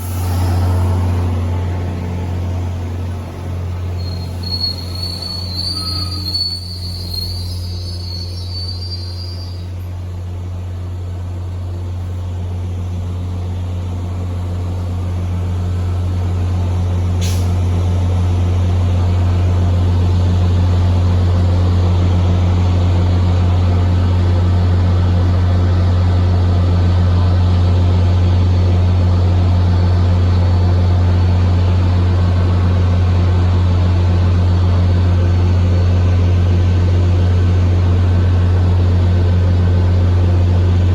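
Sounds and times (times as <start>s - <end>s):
diesel locomotive engine drone: 0.0s - 40.9s
wheel squeal: 4.0s - 9.8s
short sharp hiss: 17.2s - 17.6s.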